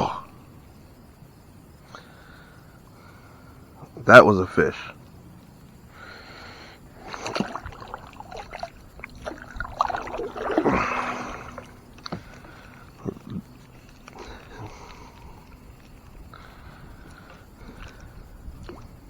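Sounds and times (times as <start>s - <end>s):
water splashing: 6.9s - 15.6s.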